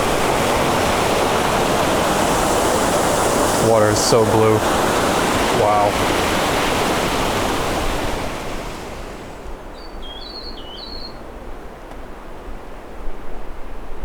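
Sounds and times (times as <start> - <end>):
rushing water: 0.0 - 9.7.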